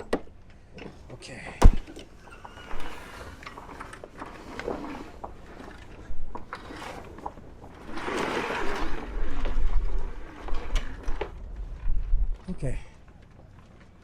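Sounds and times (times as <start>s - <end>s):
wind rumble on microphone: 8.0s - 13.4s.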